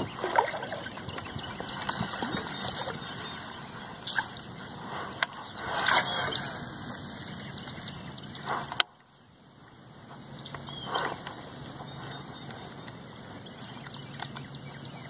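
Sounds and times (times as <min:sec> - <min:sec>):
water swish: 0:00.0 - 0:08.8.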